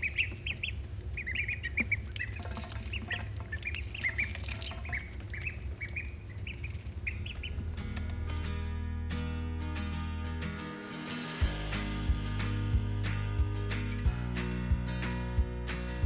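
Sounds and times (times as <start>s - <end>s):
ducklings peeping: 0.0s - 8.3s
guitar music: 7.5s - 16.0s.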